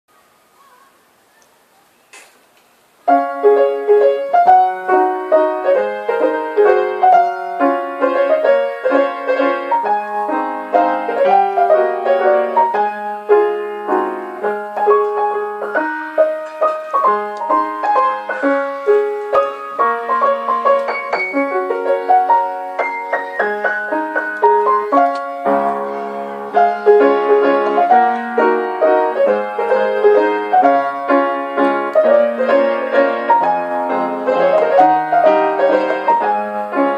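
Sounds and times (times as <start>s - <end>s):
piano music: 3.0s - 36.9s.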